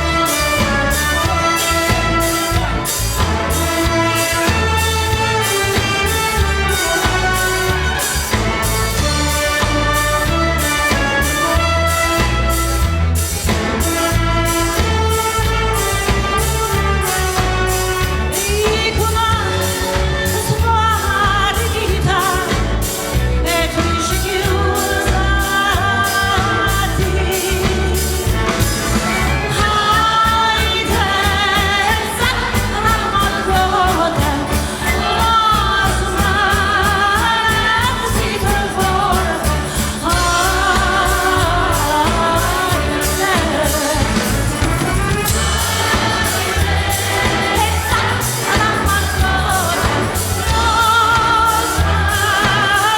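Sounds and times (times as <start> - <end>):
symphony orchestra: 0.0 - 52.9
woman singing with vibrato: 14.4 - 28.6, 29.3 - 52.9.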